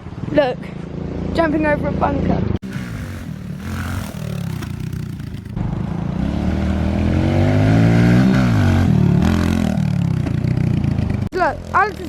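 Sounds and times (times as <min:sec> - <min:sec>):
motorcycle engine revving: 0:02.6 - 0:12.0.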